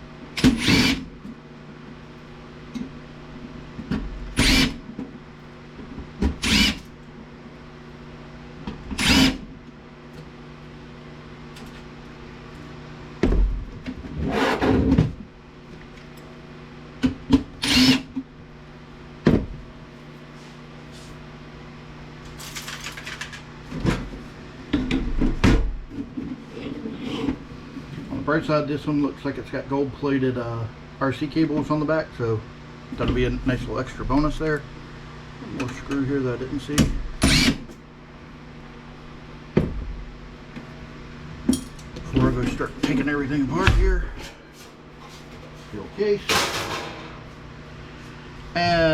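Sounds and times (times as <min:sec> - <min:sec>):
steady low hum: 0:00.0 - 0:48.9
power screwdriver running: 0:00.4 - 0:01.0, 0:04.4 - 0:04.8, 0:06.4 - 0:06.9, 0:09.0 - 0:09.4, 0:17.6 - 0:18.0, 0:37.2 - 0:37.6.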